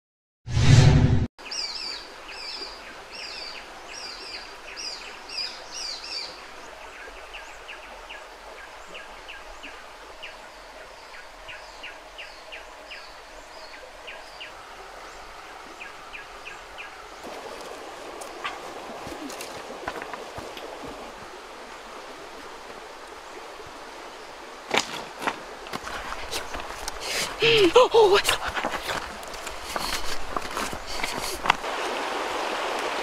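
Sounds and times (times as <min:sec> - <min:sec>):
steady outdoor hiss: 0:01.4 - 0:33.0.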